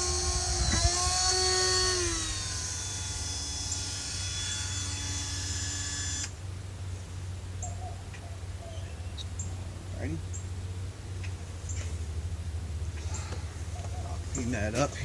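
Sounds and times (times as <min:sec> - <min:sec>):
rotary tool whine drilling glass: 0:00.0 - 0:06.3.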